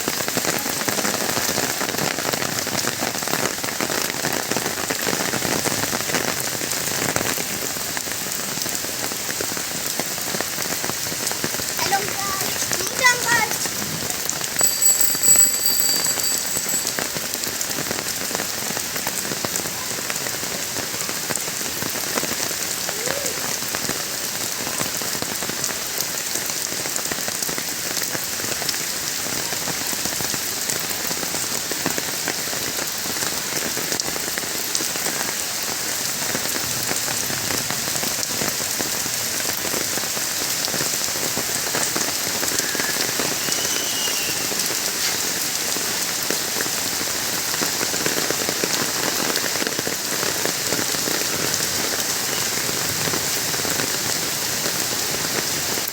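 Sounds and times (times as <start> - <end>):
rain falling: 0.0 - 55.9
thin high-pitched tone: 14.6 - 17.3.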